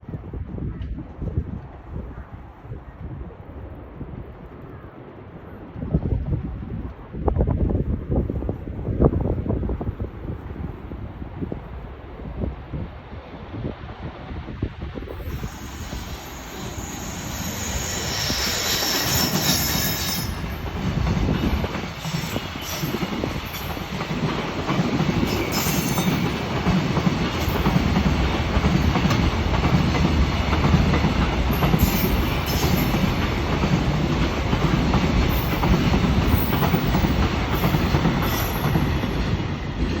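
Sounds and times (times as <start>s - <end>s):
freight train passing: 3.6s - 40.0s
high-pitched wheel screeches: 15.2s - 20.4s.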